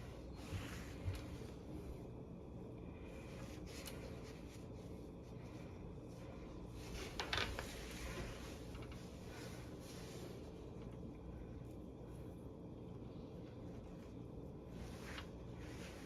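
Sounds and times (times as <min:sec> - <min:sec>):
rubbing and scratching: 0:13.8 - 0:16.0.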